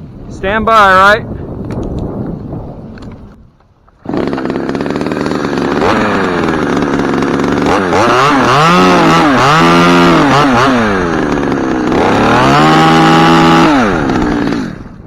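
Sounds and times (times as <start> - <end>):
chainsaw engine revving: 4.0 - 15.0.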